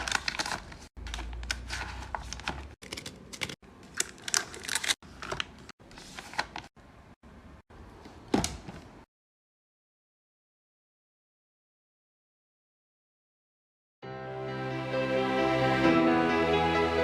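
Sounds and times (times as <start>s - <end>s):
packaging rustling and clicking: 0.0s - 6.7s.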